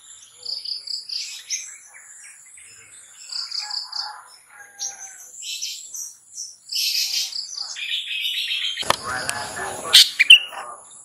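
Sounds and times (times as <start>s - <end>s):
bird singing scratchy calls: 4.7s - 10.7s.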